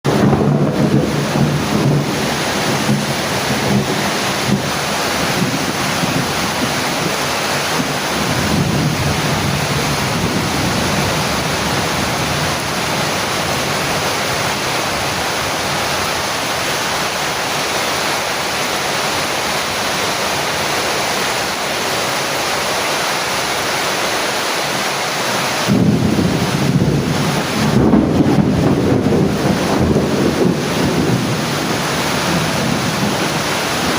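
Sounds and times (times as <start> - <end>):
heavy rain falling: 0.0 - 33.9
low thunder rumbles: 0.1 - 16.4, 25.7 - 33.9.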